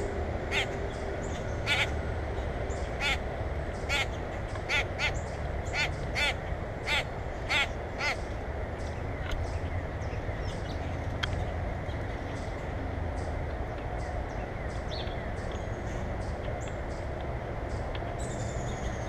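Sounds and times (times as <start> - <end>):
steady low rumble: 0.0 - 19.0
bird harsh cawing calls: 0.5 - 2.0, 2.7 - 8.3.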